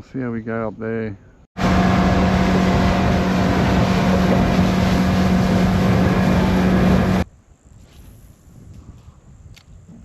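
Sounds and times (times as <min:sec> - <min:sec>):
outboard motor running: 0:01.6 - 0:07.2
water rushing: 0:01.6 - 0:07.2.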